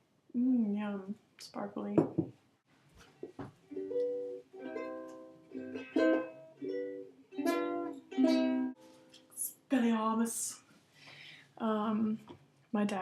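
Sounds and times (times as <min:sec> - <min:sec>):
plucked string instrument strumming: 0:03.7 - 0:09.3.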